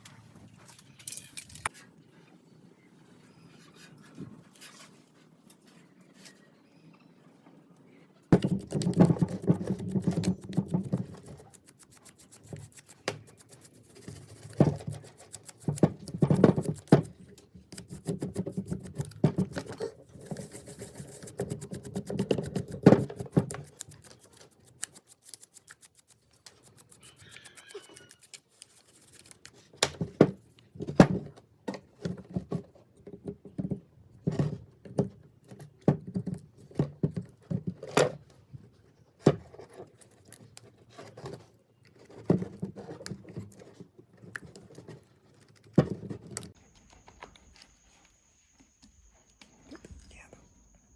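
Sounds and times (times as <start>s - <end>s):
hand tools scraping and clicking: 0.1s - 1.7s, 8.4s - 29.8s.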